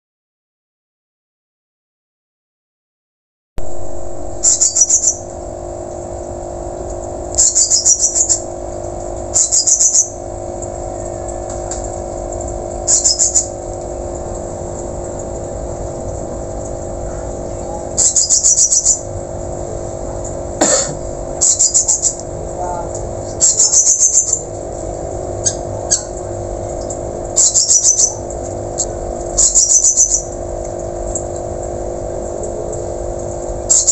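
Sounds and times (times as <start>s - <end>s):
steady low hum: 3.6s - 33.9s
thrush calling: 4.4s - 5.2s, 7.4s - 8.5s, 9.4s - 10.2s, 12.9s - 13.6s, 17.8s - 19.1s, 21.4s - 22.2s, 23.4s - 24.5s, 27.4s - 28.2s, 29.4s - 30.3s, 33.7s - 33.9s.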